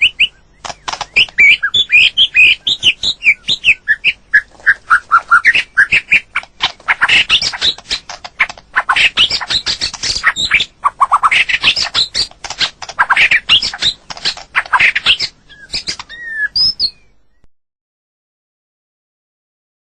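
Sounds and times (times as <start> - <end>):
bird singing whistled notes: 0.0 - 8.1, 8.9 - 12.3, 14.7 - 17.5
harsh bird chattering calls: 0.0 - 17.2.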